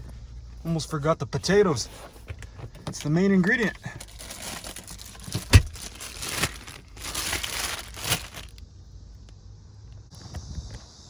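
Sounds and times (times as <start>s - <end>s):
bag rustling and crinkling: 3.4s - 8.6s
thump: 5.4s - 5.9s.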